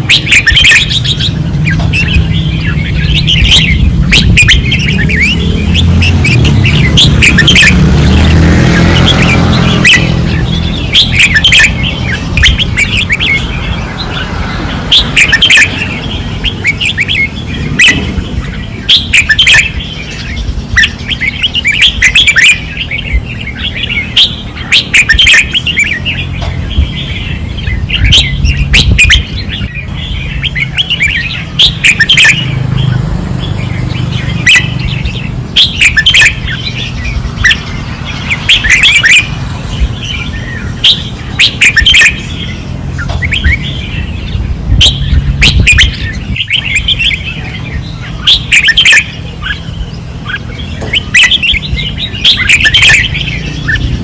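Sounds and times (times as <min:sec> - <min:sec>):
birds singing chirpy phrases: 0:00.0 - 0:54.0.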